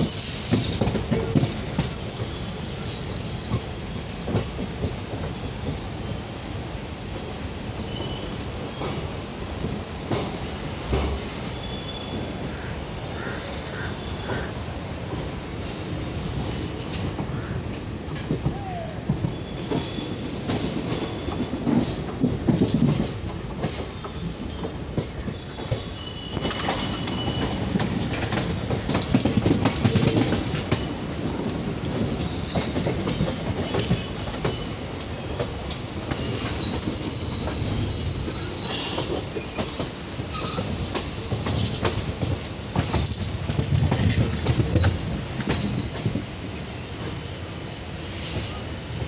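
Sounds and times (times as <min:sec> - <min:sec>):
train rumbling: 0:00.0 - 0:49.0
high wheel squeals: 0:02.0 - 0:04.8, 0:25.4 - 0:27.7, 0:35.8 - 0:39.6, 0:45.5 - 0:46.2
wheels clattering over rail joints: 0:25.0 - 0:46.4.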